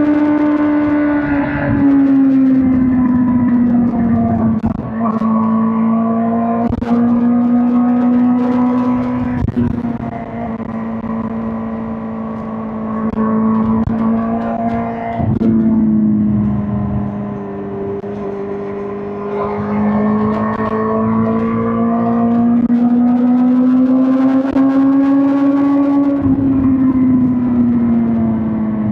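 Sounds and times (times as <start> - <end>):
motorcycle engine running: 6.5 - 21.2.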